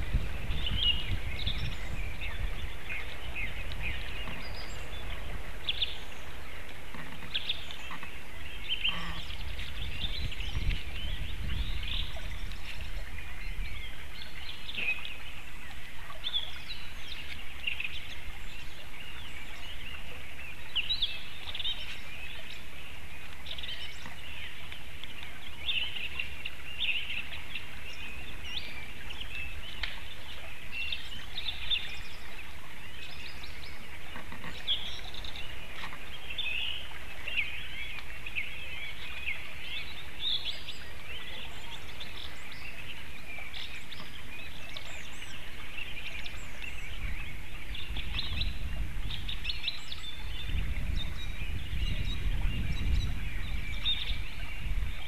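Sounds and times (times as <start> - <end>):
birds chirping and calling: 0.0 - 22.6.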